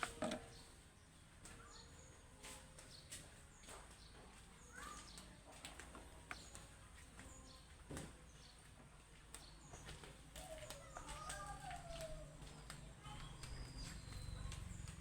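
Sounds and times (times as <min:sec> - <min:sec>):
faint bird chirps: 0:04.6 - 0:05.3, 0:09.4 - 0:15.0.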